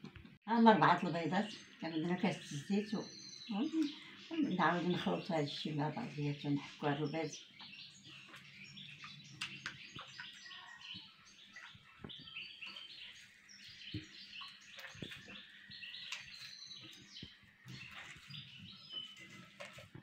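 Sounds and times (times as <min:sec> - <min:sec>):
small birds chirping: 0:00.1 - 0:20.0
hand mixing batter squelches: 0:03.6 - 0:20.0.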